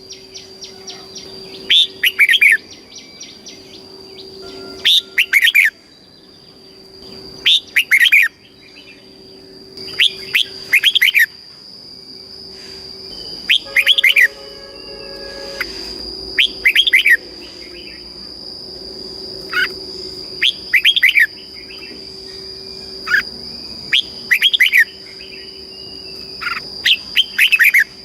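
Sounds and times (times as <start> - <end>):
bird singing warbling phrases: 0.1 - 6.5, 9.8 - 11.3, 13.2 - 15.7, 23.9 - 27.9
faint high-pitched tone: 4.1 - 5.9, 13.5 - 18.4.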